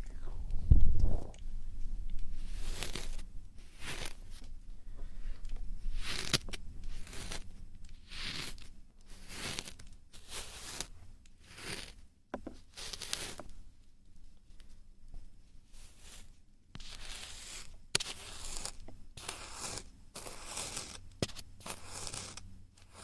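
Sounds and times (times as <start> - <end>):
scratchy rubbing on microphone: 2.2 - 4.4, 5.8 - 13.4, 15.7 - 23.0.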